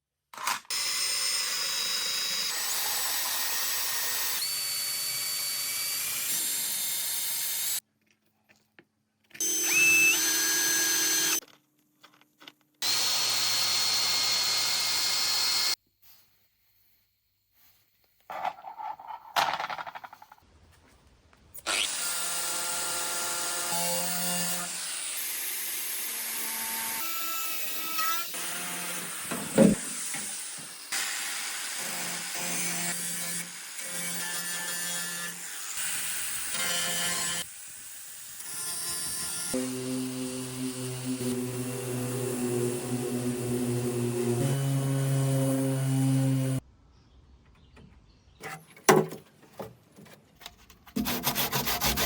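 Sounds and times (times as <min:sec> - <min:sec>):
power tool motor whine: 0:09.4 - 0:11.4, 0:38.8 - 0:46.6.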